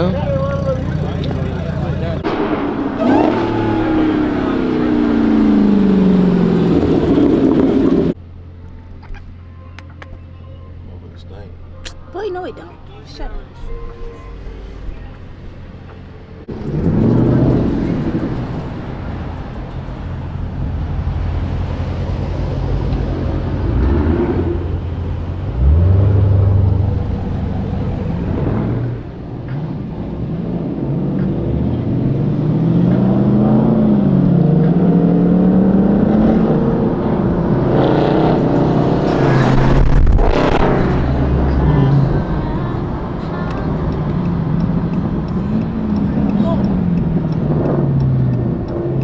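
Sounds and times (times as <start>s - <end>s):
car engine revving: 0.0s - 8.2s, 12.9s - 49.0s
car engines droning: 0.0s - 49.0s.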